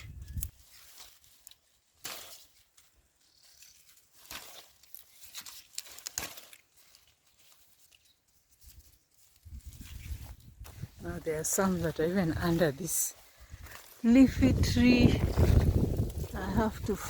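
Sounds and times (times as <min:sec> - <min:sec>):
plant leaves rustling: 0:00.0 - 0:17.0.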